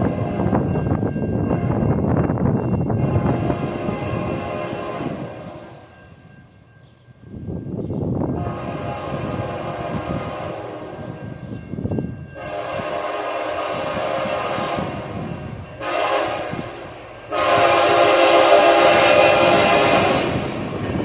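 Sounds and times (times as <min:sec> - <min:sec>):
train rumble: 0:00.0 - 0:21.0
locomotive air horn blasts: 0:03.0 - 0:05.8, 0:08.3 - 0:11.2, 0:12.4 - 0:20.5.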